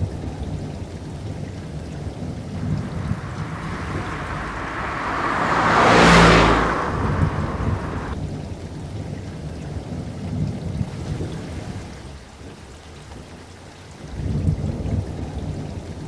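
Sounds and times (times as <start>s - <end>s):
rushing noise: 2.6s - 8.2s.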